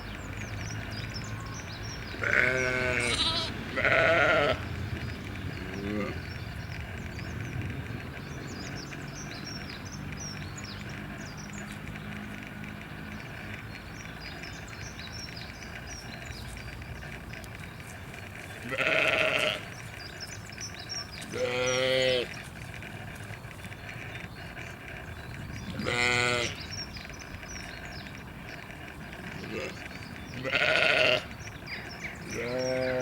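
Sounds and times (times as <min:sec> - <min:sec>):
sheep or goat bleating: 0:02.2 - 0:04.6, 0:18.6 - 0:19.7, 0:21.2 - 0:22.3, 0:25.7 - 0:26.6, 0:29.4 - 0:29.8, 0:30.4 - 0:31.3, 0:32.3 - 0:33.0.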